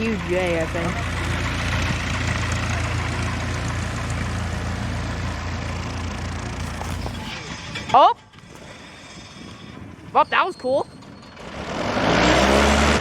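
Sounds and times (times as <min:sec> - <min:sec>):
aircraft engine droning: 0:00.0 - 0:07.8.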